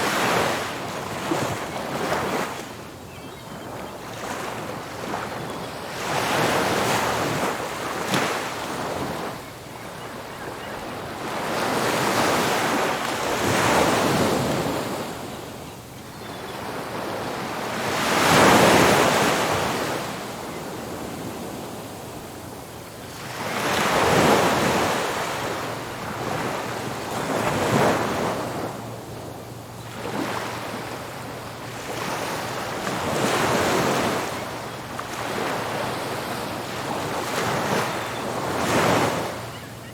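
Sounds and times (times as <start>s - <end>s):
waves crashing on a beach: 0.0s - 2.8s.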